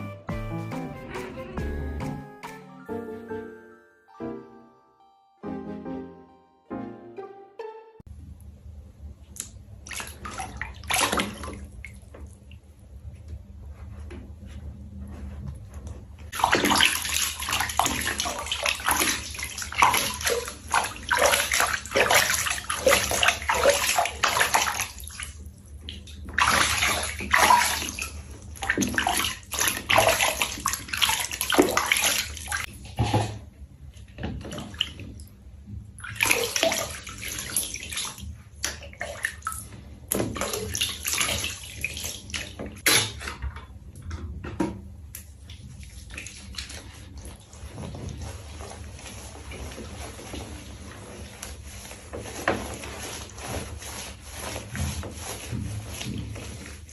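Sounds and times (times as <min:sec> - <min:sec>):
water splashing and pouring: 0:09.9 - 0:12.0, 0:16.3 - 0:33.4, 0:36.0 - 0:43.2.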